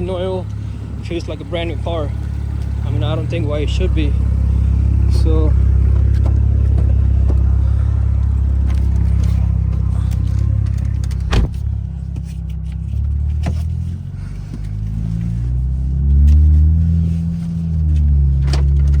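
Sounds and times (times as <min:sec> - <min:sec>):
car engine driving off: 0:00.0 - 0:19.0.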